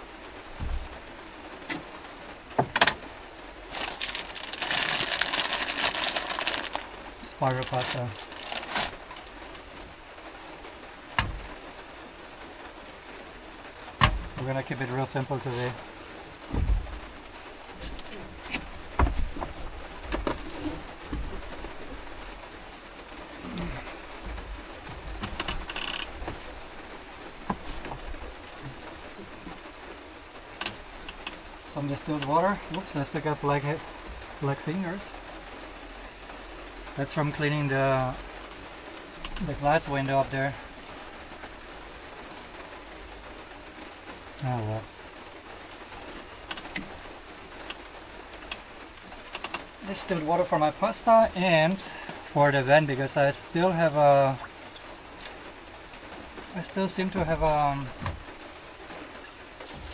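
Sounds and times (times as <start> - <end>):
plastic packaging crinkling: 3.7 - 9.6.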